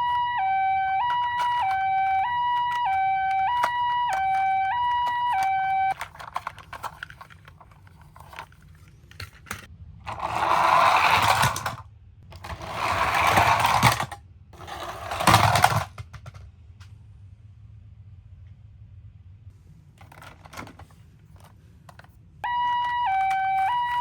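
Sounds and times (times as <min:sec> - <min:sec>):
toy wheels whirring: 0:00.0 - 0:16.1
toys clicking and knocking: 0:00.9 - 0:16.5, 0:20.0 - 0:24.0.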